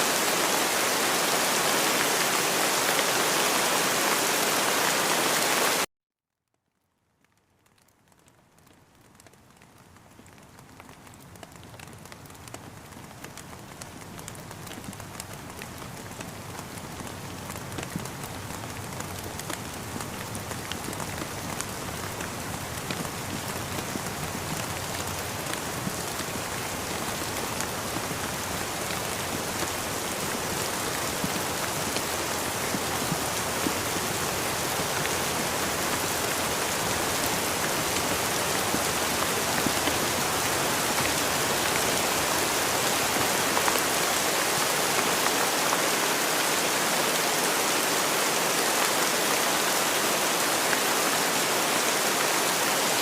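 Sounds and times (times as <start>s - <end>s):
steady rain falling: 0.0s - 5.9s, 6.7s - 53.0s
raindrops tapping: 7.2s - 46.5s.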